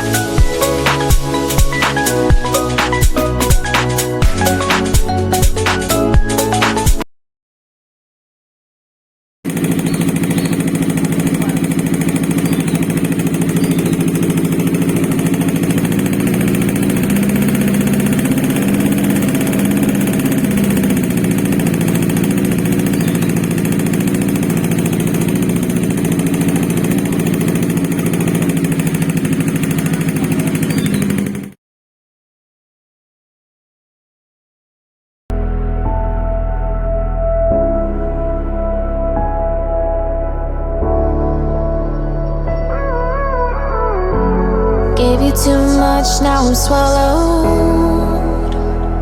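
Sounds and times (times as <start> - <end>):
motorcycle engine idling: 0.0 - 6.8, 9.5 - 31.6, 45.0 - 49.0.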